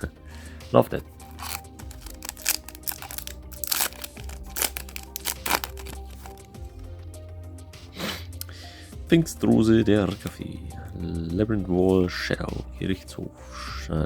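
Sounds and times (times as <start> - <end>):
background music: 0.0 - 14.0
foil wrapper crinkling and tearing: 1.3 - 6.6.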